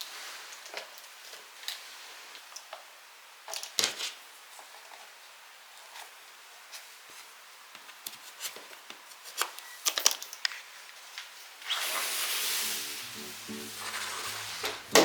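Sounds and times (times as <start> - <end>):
hiss: 11.7 - 15.0
soft guitar music: 12.6 - 15.0.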